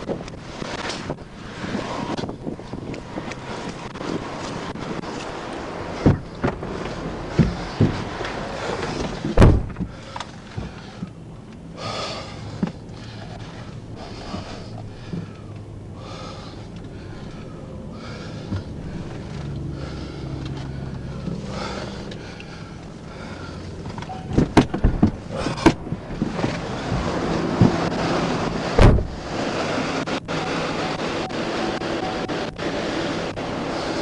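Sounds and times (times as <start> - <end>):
wind buffeting microphone: 0.0 - 11.3, 19.8 - 34.0
highway traffic: 0.0 - 34.0.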